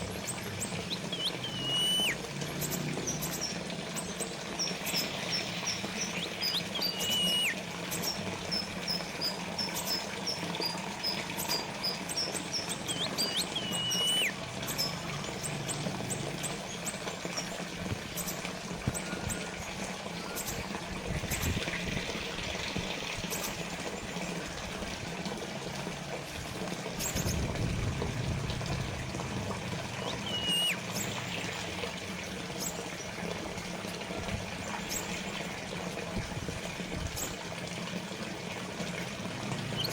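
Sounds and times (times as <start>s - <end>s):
fountain water trickling: 0.0s - 39.9s
bird chirping: 0.6s - 3.6s, 4.6s - 16.2s, 30.0s - 31.5s
bird whistled notes: 0.9s - 2.2s, 4.8s - 8.7s, 9.6s - 15.5s, 30.0s - 31.1s.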